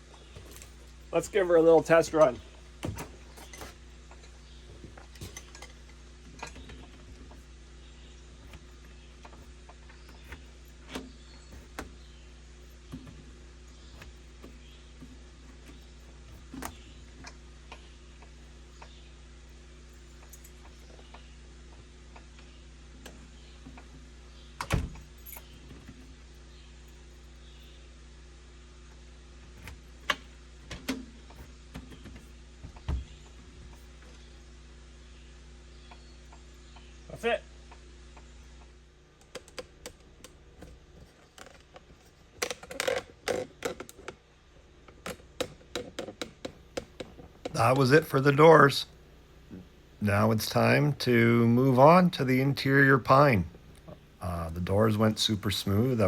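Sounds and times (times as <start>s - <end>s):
steady low hum: 0.0s - 56.0s
door hardware clicks and rattles: 23.0s - 26.1s, 29.5s - 33.8s, 44.9s - 47.6s.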